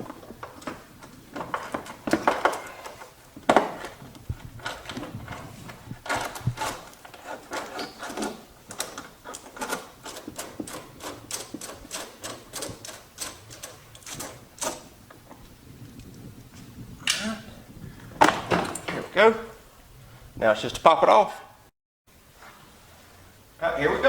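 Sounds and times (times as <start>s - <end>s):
hand ratchet clicking: 6.0s - 14.8s.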